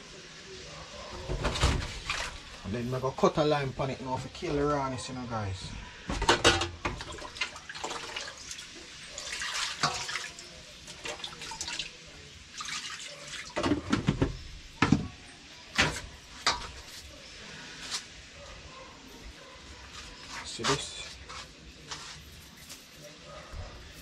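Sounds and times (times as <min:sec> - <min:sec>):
tap water splashing in sink: 0:06.2 - 0:11.9.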